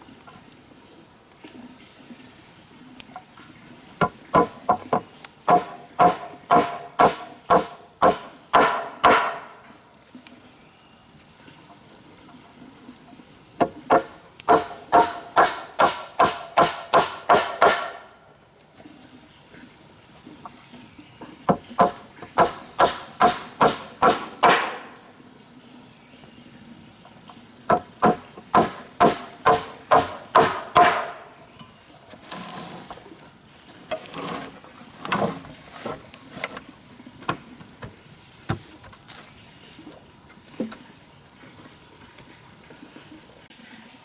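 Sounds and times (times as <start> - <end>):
scattered knocks: 4.0 - 9.5, 13.6 - 18.0, 21.5 - 24.9, 27.7 - 31.2
rustling: 32.1 - 40.6.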